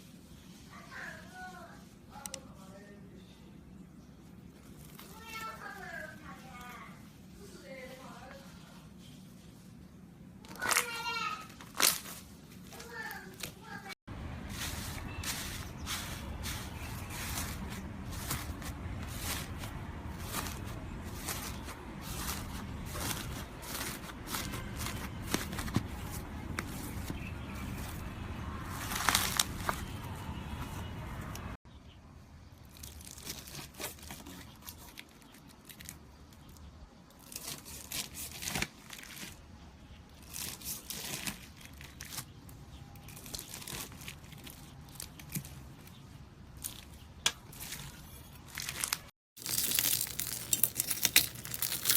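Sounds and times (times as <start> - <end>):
slime squeezed and crackling: 48.6 - 51.9.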